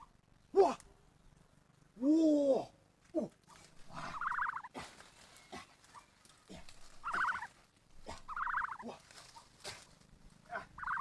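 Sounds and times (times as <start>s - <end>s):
pulsed bird calls: 3.9s - 4.7s, 6.9s - 7.5s, 8.1s - 8.9s, 10.6s - 11.0s.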